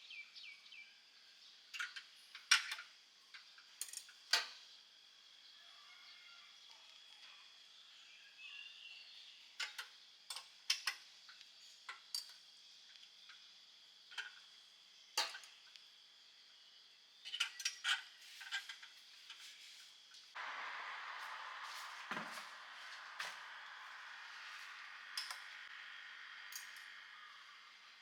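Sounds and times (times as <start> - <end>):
faint high-pitched hum: 4.7 - 17.8, 20.4 - 28.0.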